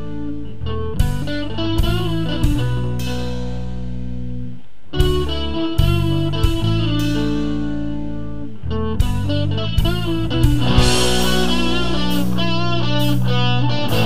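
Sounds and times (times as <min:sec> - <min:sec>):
drums: 0:01.0 - 0:07.9, 0:08.9 - 0:14.0
electric guitar riff: 0:05.1 - 0:14.0.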